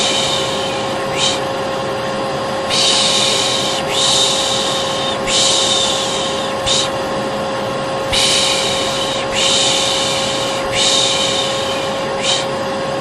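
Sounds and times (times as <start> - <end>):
person shushing: 0.0 - 1.4, 2.7 - 7.0, 8.1 - 12.6
vacuum cleaner humming: 0.0 - 13.0.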